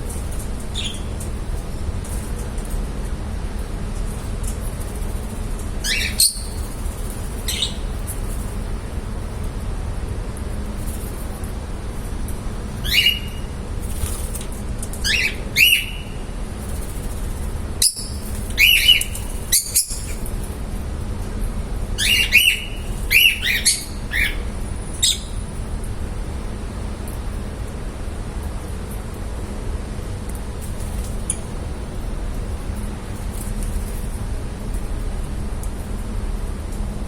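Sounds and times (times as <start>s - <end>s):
steady low hum: 0.0s - 37.0s
birds chirping shrilly: 0.7s - 1.2s, 5.8s - 6.7s, 7.4s - 8.1s, 12.8s - 13.5s, 15.0s - 16.2s, 17.8s - 20.2s, 22.0s - 25.4s.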